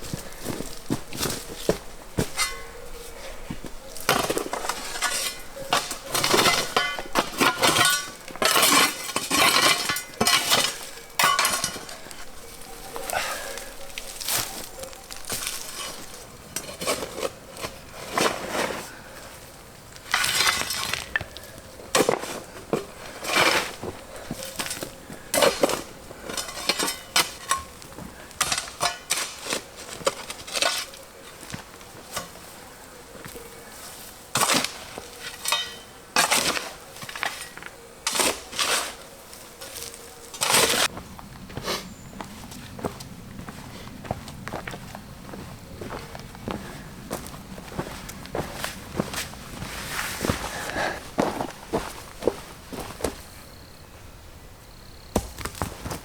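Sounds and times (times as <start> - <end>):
metal clinks knocks and scrapes: 1.4 - 3.0, 4.0 - 12.5, 24.4 - 31.0, 35.3 - 38.9.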